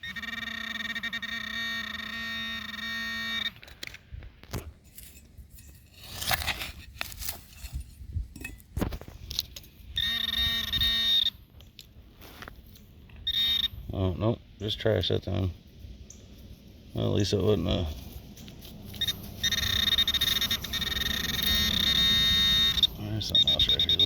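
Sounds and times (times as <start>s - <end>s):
metal detector buzzing tone: 0.0s - 3.9s, 9.9s - 11.4s, 13.2s - 14.1s, 18.9s - 24.0s
digging in soil: 3.6s - 10.0s.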